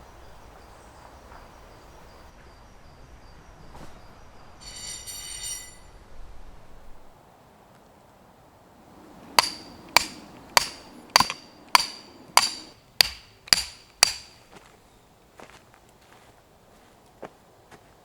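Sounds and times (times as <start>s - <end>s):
hammer striking metal: 4.6s - 5.9s, 9.4s - 14.4s.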